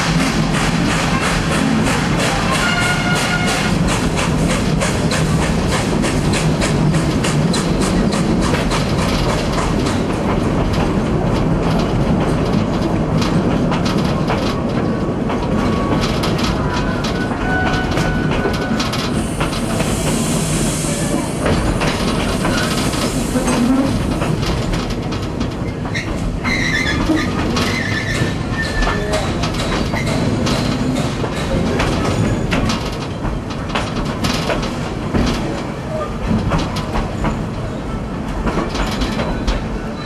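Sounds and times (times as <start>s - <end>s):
wheels clicking over rail joints: 0.0s - 20.0s, 21.3s - 40.0s
steam train rumble: 0.0s - 40.0s
steam hiss: 19.0s - 24.0s
wheel squeals: 25.6s - 29.2s.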